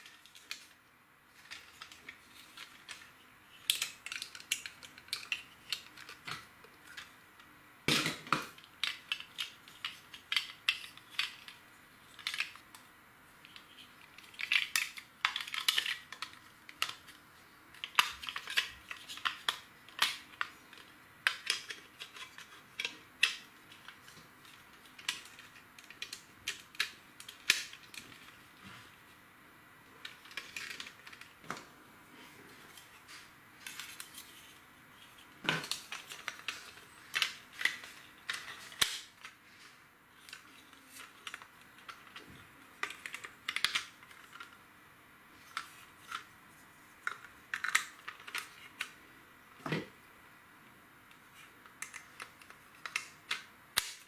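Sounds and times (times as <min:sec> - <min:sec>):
plastic bricks clicking: 0:13.5 - 0:17.1, 0:40.2 - 0:44.6, 0:47.0 - 0:49.0.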